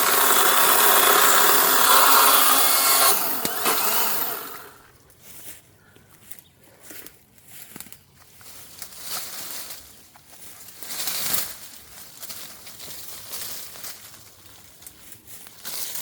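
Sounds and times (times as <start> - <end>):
branches rustling and crackling: 1.0 - 16.0.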